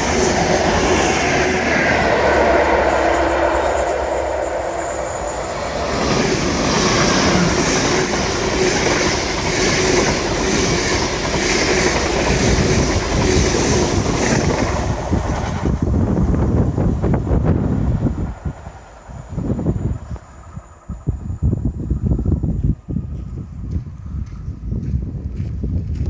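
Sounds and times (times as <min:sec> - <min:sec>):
train wheels clattering over joints: 0:00.0 - 0:15.7
low train rumble: 0:00.0 - 0:26.0.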